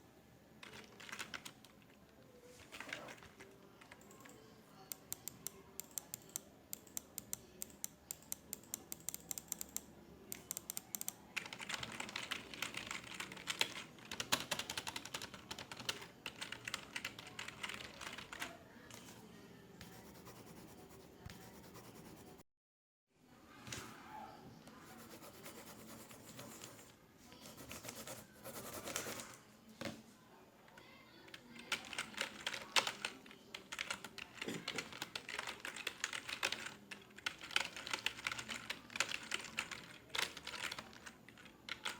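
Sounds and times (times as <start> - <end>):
faint office room background: 0.0 - 22.5, 23.1 - 41.9
keyboard typing: 0.6 - 1.9, 2.7 - 19.1, 19.8 - 22.4, 31.4 - 41.9.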